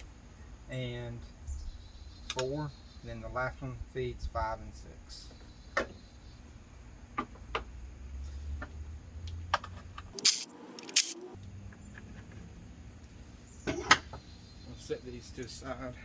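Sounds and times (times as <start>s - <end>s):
clicks of handled ignition parts: 2.3s - 2.5s, 8.6s - 12.3s.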